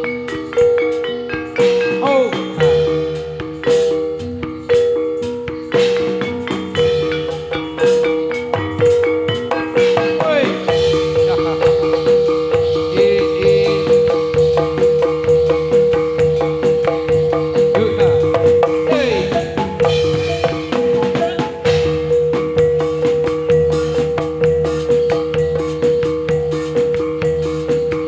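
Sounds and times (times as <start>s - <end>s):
shaken rattle: 0.0s - 21.5s
metallophones and drums playing: 0.0s - 28.0s.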